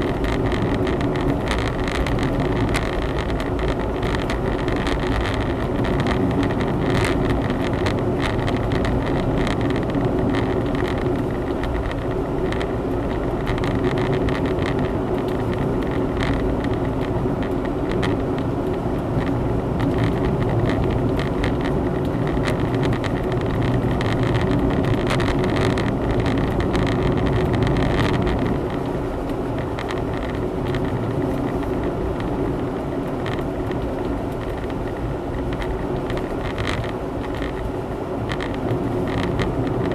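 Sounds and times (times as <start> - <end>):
car engine and road noise: 0.0 - 39.9
light clicks and rattles: 0.0 - 39.9.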